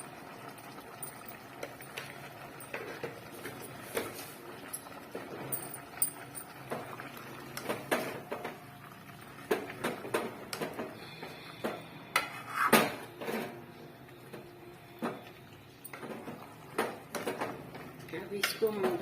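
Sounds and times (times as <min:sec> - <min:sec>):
spoon scraping cooking pot: 0:12.2 - 0:13.3.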